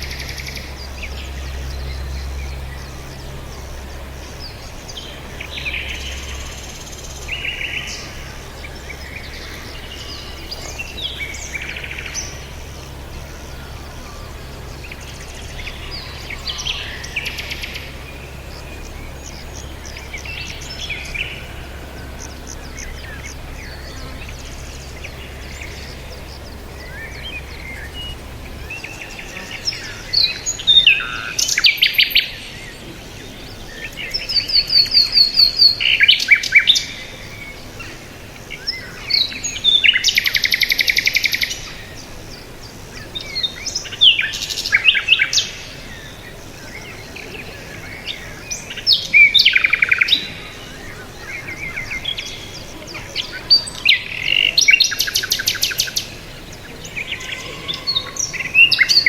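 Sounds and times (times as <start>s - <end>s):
low hum: 0.0s - 31.2s
songbirds chirping: 0.0s - 59.0s
steady background hiss: 0.0s - 59.0s.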